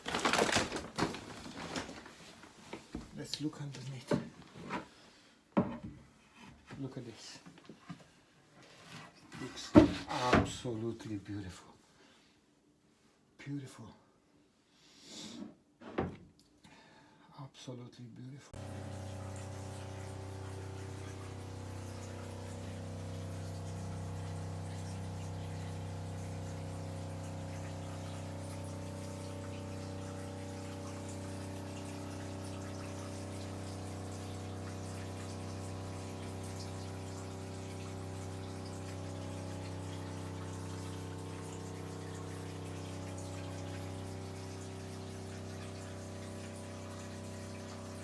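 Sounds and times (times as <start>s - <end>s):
machine humming with tones: 18.6s - 48.0s.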